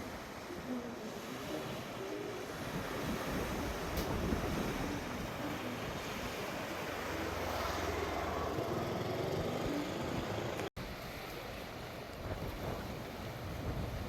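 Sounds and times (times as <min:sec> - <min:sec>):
sea waves washing ashore: 0:00.0 - 0:14.0
wind rumbling on microphone: 0:02.4 - 0:08.6, 0:09.5 - 0:14.0.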